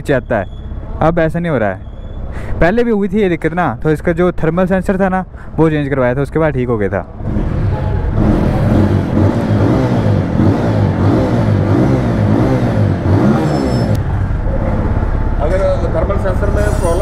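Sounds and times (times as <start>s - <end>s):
motorcycle engine revving: 7.2s - 15.4s.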